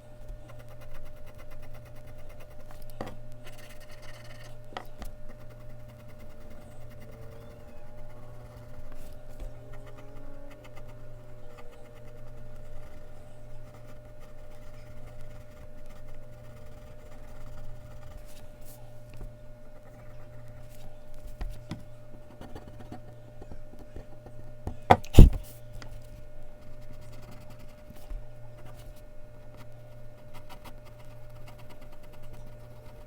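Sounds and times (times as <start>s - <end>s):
steady low hum: 0.0s - 33.0s
pencil scratching on paper: 0.3s - 18.8s, 19.6s - 23.1s, 26.6s - 33.0s.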